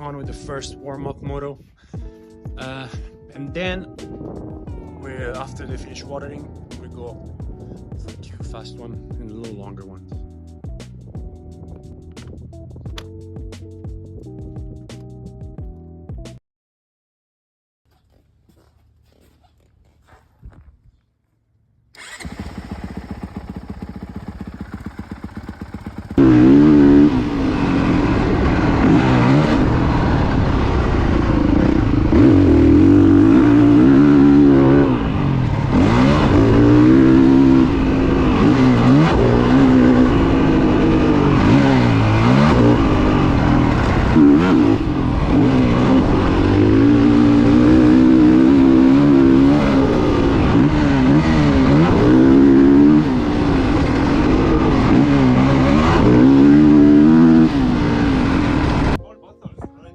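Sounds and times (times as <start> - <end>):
motorbike engine revving: 21.9 - 59.0.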